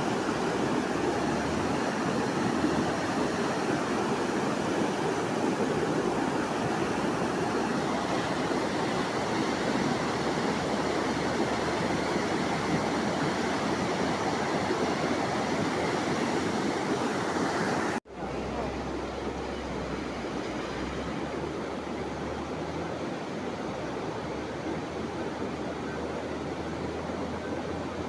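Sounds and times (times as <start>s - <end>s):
fast-flowing water rushing: 0.0s - 28.0s.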